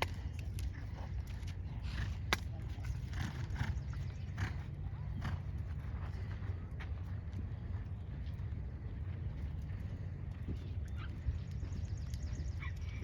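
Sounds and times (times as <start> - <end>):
horse breathing: 0.0 - 6.6
steady low rumble: 0.0 - 13.0.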